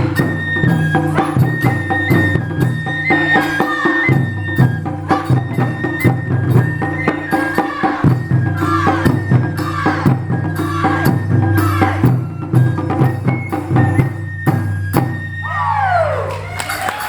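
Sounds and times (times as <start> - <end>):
high flute melody: 0.0 - 17.0
taiko drums playing: 0.0 - 17.0.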